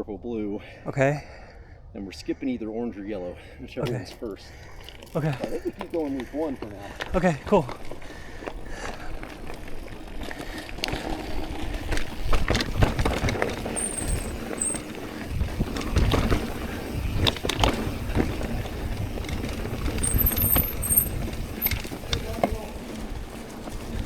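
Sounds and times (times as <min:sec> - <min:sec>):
bike tyres on rocky trail: 0:03.4 - 0:24.0
knocks and rattles over rocks: 0:03.8 - 0:24.0
brakes squealing: 0:12.4 - 0:24.0.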